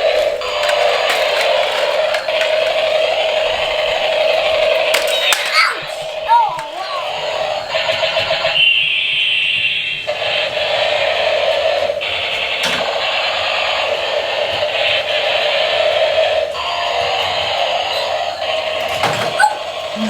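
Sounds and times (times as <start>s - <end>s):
toy electronic sound effects: 0.1s - 8.9s.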